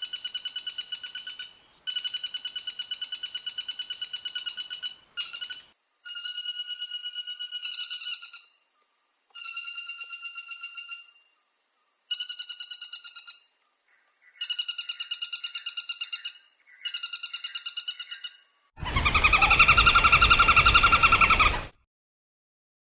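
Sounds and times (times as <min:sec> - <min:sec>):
woodpecker rattling calls: 0:00.0 - 0:08.5, 0:14.2 - 0:21.8.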